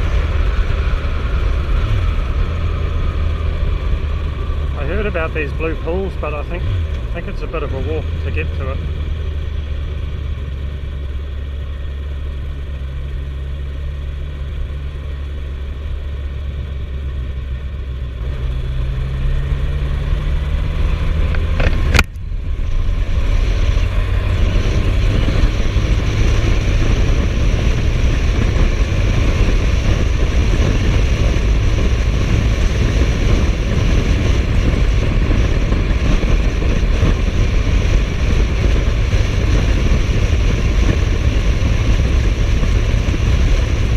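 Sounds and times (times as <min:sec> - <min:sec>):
wind noise: 0:00.0 - 0:09.7, 0:18.3 - 0:43.9
motorcycle engine accelerating: 0:00.0 - 0:43.9.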